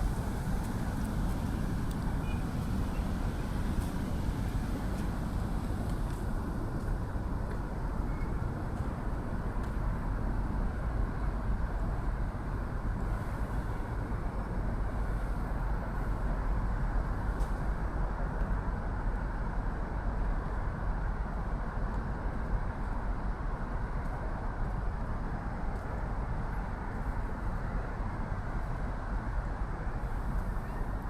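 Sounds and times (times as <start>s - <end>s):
road traffic hum: 0.0s - 10.7s, 11.4s - 18.0s, 23.8s - 31.0s.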